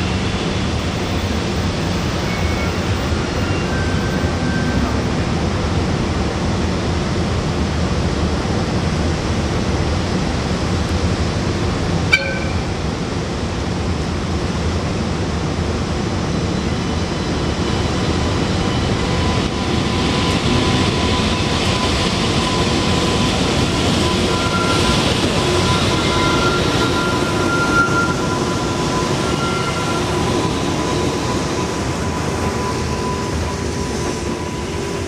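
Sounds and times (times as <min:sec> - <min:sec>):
train wheels rumbling: 0:08.2 - 0:35.0.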